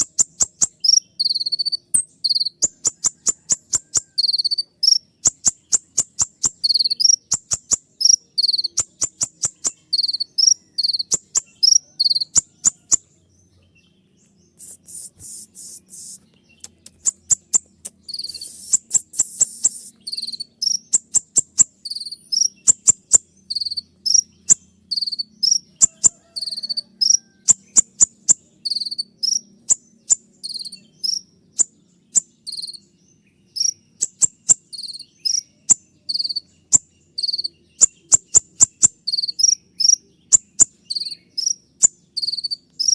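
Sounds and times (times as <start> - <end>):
bird buzzy rattles: 5.3 - 12.8
bird chip notes: 14.6 - 24.3.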